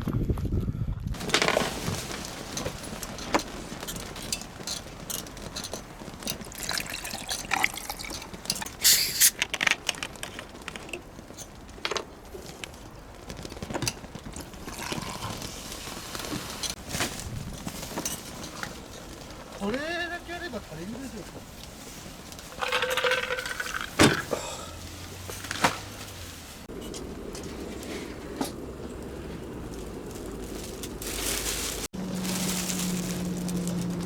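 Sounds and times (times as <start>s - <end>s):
liquid pouring and splashing: 6.5s - 9.3s, 22.5s - 24.3s.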